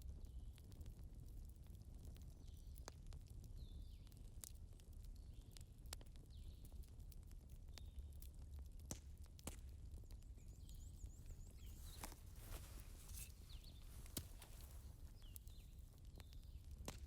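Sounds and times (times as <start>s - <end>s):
candles crackling: 10.1s - 17.0s.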